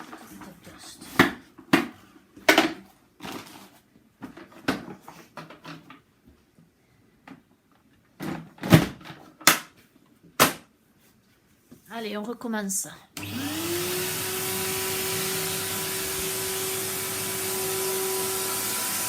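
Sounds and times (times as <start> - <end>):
plastic knocks and clatters: 1.1 - 6.1, 7.2 - 10.7.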